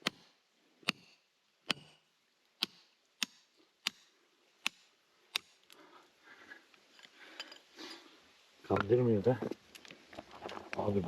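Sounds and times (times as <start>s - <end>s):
hammer striking rock: 0.0s - 2.0s, 2.6s - 5.5s.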